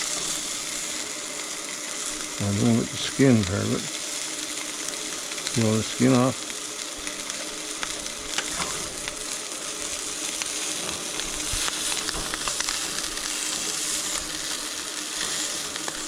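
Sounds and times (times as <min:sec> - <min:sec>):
food sizzling in a frying pan: 0:00.0 - 0:16.0.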